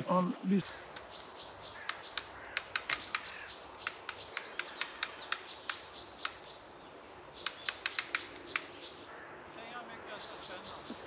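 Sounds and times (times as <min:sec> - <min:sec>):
small birds chirping: 0:00.1 - 0:11.0
high warbling bird trill: 0:10.1 - 0:11.0.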